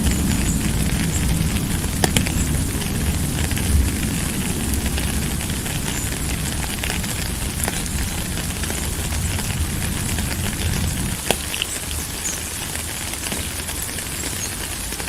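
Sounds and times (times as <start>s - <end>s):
low rumble: 0.0s - 11.3s
steady rain falling: 0.0s - 15.0s.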